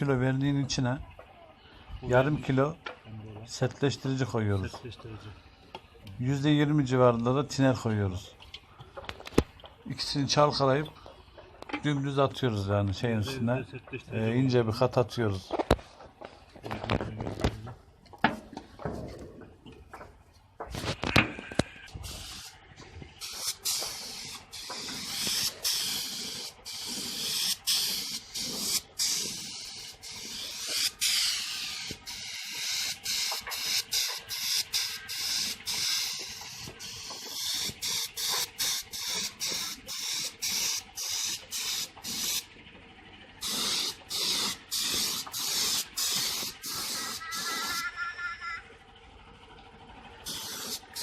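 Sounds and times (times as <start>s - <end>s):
paint spray gun hissing: 22.0s - 22.6s, 23.2s - 42.5s, 43.4s - 47.9s, 50.2s - 51.0s.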